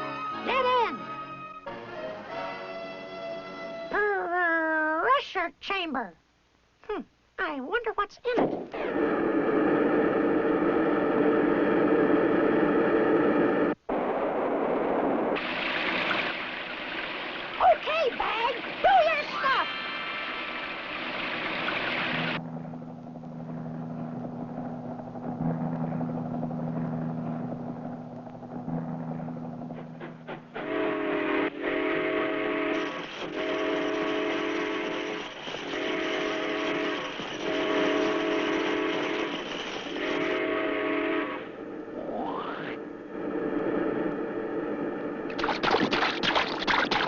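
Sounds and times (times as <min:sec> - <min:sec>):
low steady drone: 0:20.6 - 0:45.4
whistle-like horn blasts: 0:30.6 - 0:41.6.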